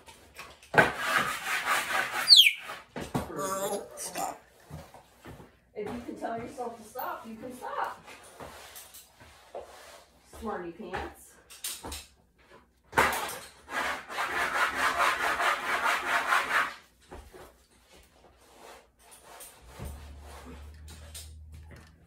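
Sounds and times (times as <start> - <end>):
scrubbing on a hard surface: 0.8 - 10.7, 13.6 - 20.8.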